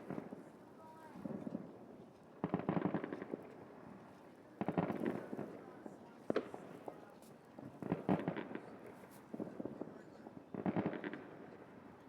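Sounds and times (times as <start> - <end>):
fireworks cracking pops: 10.5 - 11.4.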